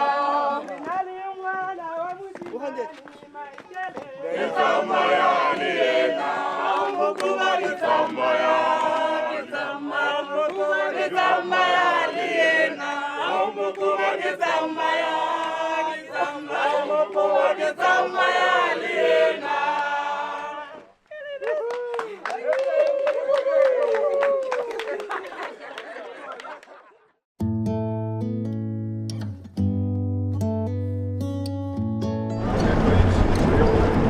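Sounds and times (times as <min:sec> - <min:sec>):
choir singing and chanting: 0:00.0 - 0:01.1, 0:03.9 - 0:20.9, 0:32.4 - 0:34.0.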